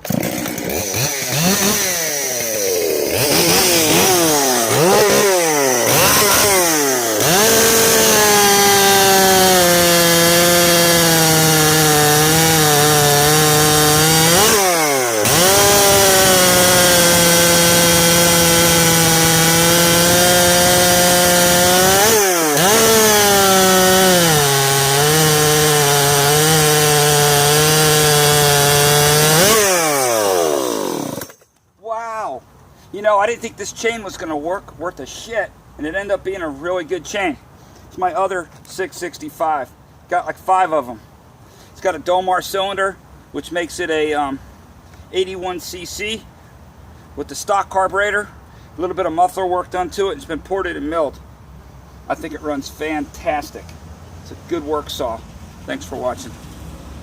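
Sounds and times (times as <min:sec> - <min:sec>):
chainsaw cutting wood: 0:00.0 - 0:31.6.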